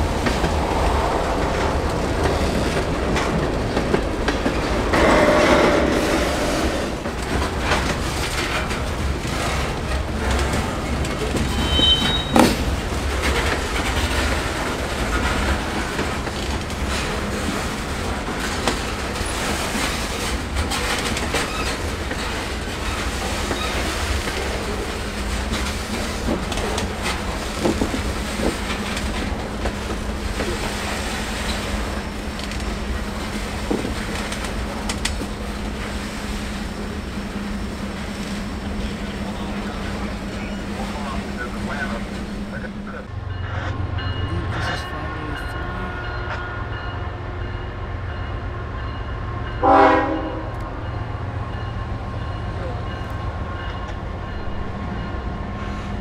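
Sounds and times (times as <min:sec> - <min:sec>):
train wheels clacking over joints: 0:00.0 - 0:44.7
high wheel squeal: 0:04.9 - 0:07.0, 0:11.5 - 0:12.6.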